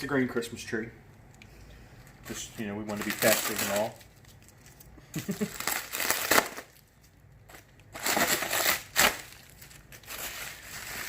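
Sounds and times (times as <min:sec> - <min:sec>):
packing material rustling: 0:02.0 - 0:11.0.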